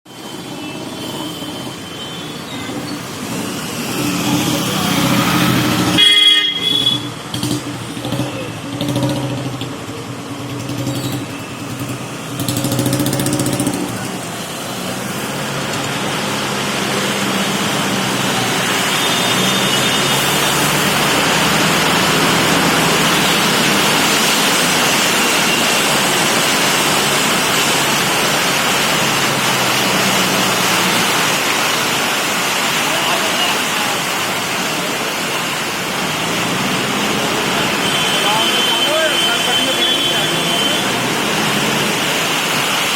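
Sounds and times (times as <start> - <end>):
road traffic engines: 0.1 - 42.9
heavy rain hissing: 0.2 - 42.9
car horn: 5.6 - 7.6, 37.7 - 41.0.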